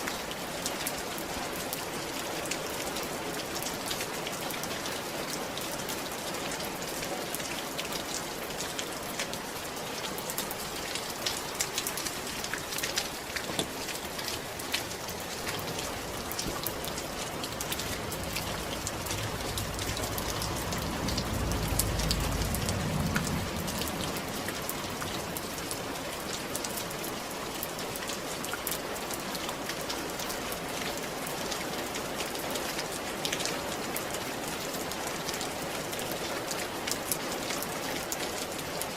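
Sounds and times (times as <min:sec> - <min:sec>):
rain falling on a roof: 0:00.0 - 0:38.9
raindrops ticking: 0:02.5 - 0:38.9
low rumble: 0:17.2 - 0:25.1.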